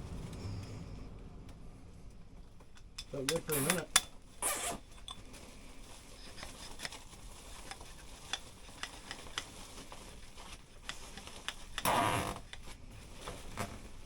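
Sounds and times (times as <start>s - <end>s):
small handling clicks and taps: 7.6s - 9.5s, 10.8s - 12.7s.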